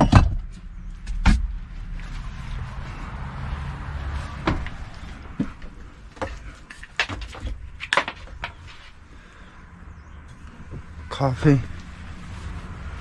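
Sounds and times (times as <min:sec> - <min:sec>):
knocks and clicks of handling: 0:04.4 - 0:08.8.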